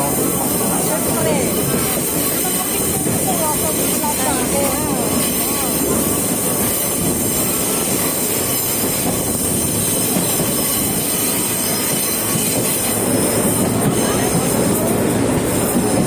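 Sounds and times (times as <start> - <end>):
train wheels rumbling on track: 0.0 - 16.0
wheel squeal: 6.6 - 14.4.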